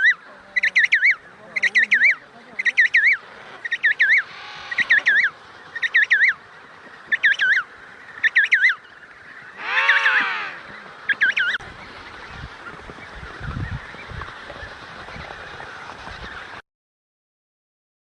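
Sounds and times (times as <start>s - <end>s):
penguin honking call: 9.6s - 10.6s.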